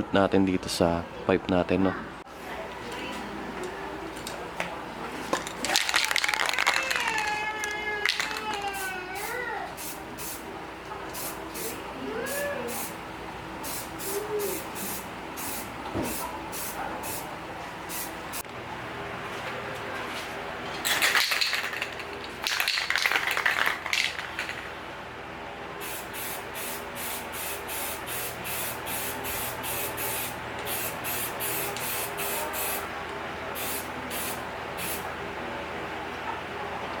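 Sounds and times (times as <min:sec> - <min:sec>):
spray paint can hissing: 0:05.7 - 0:10.4, 0:11.2 - 0:13.0, 0:13.6 - 0:17.2, 0:20.8 - 0:24.6, 0:25.8 - 0:32.8, 0:33.6 - 0:35.0.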